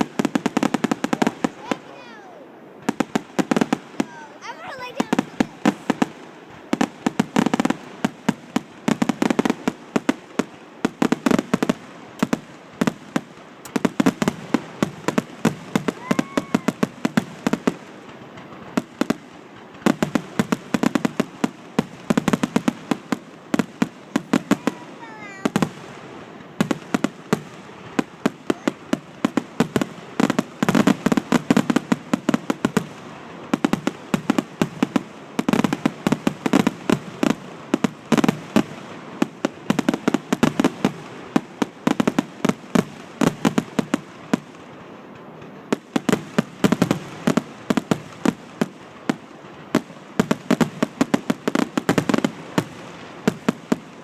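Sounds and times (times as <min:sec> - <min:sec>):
fireworks bursts: 0:00.0 - 0:54.0
firework whistle: 0:13.6 - 0:17.6.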